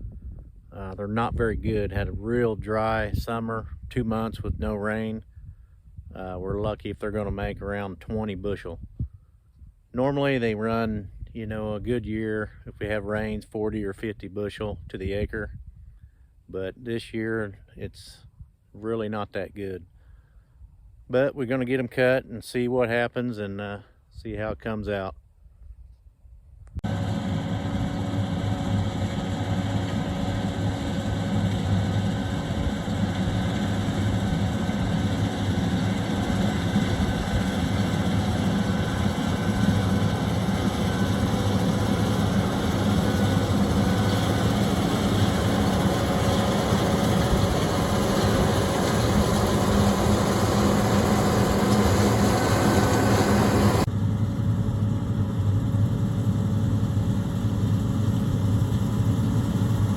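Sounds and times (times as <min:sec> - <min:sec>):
combine harvester running: 0:26.8 - 0:59.9.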